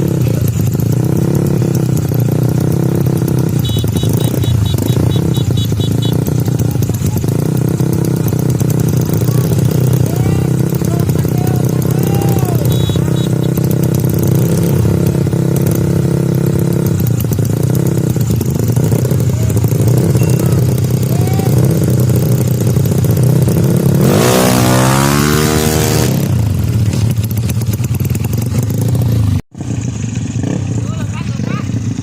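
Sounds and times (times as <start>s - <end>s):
scooter engines idling: 0.0s - 24.0s, 26.1s - 32.0s
scooter engine revving: 0.0s - 32.0s.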